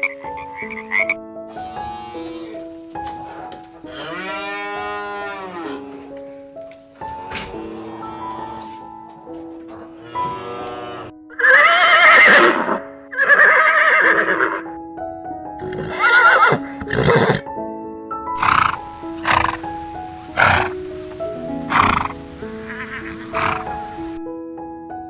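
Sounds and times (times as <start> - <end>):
background music: 0.0 - 25.0
horse whinnying: 1.6 - 6.1, 9.8 - 14.7, 15.6 - 17.5.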